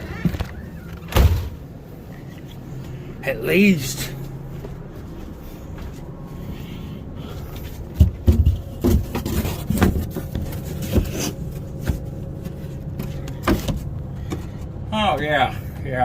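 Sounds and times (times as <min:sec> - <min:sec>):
wooden cabinet parts knocking: 0:08.0 - 0:10.5.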